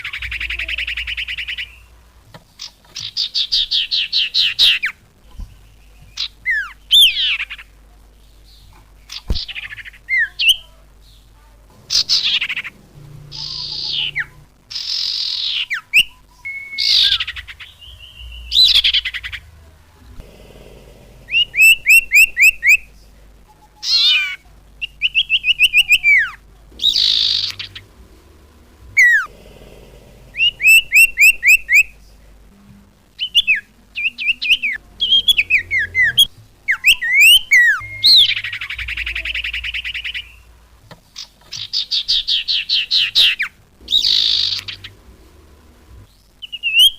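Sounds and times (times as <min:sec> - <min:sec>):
songbird whistling and chirping: 0:13.3 - 0:19.4, 0:21.3 - 0:22.8, 0:23.5 - 0:27.8, 0:33.2 - 0:40.5, 0:41.2 - 0:44.9, 0:46.1 - 0:46.9.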